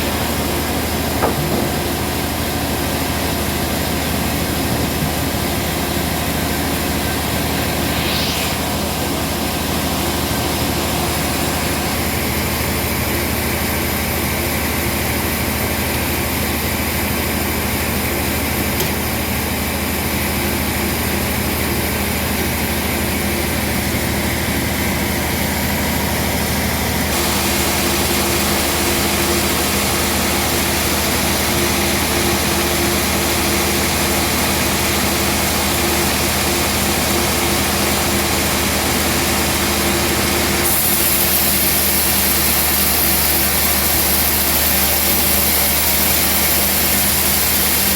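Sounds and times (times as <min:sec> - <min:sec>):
sawmill machine hum: 0:00.0 - 0:47.9
broad hiss: 0:07.1 - 0:09.4, 0:27.1 - 0:32.6, 0:40.6 - 0:47.9.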